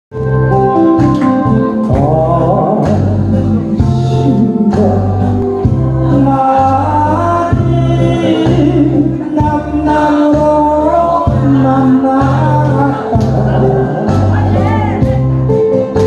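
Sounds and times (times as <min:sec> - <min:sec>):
bass line: 0:00.1 - 0:16.0
keyboard accompaniment: 0:00.1 - 0:16.0
man singing slow song: 0:01.4 - 0:15.3.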